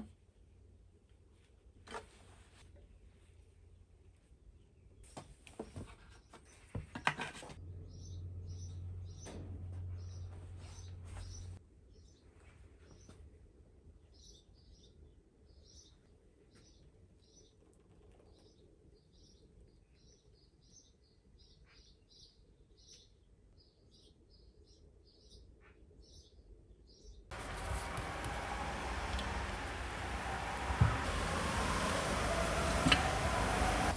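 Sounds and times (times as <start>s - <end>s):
small bird chirping: 7.8s - 9.3s
low steady rumble: 27.3s - 33.9s.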